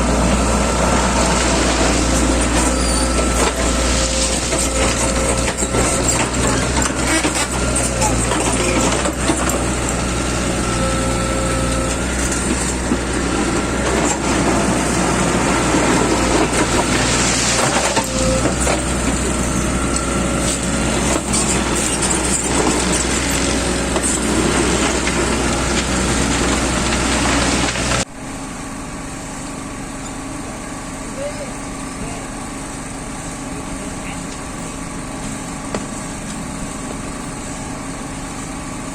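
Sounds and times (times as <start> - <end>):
low machine hum: 0.0 - 38.9
machinery rattling clatter: 1.0 - 10.0.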